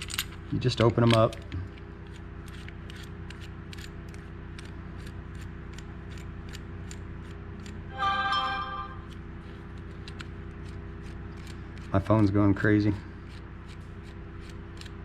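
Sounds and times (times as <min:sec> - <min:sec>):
phone electronic tone: 0:07.9 - 0:09.1.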